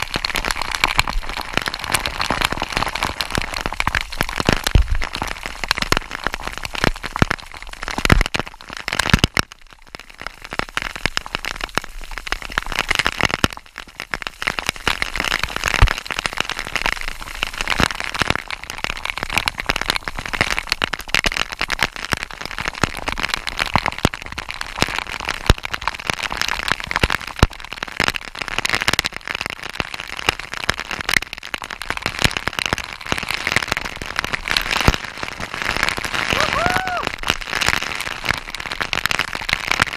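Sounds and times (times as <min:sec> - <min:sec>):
waterfall splashing: 0:36.3 - 0:37.2.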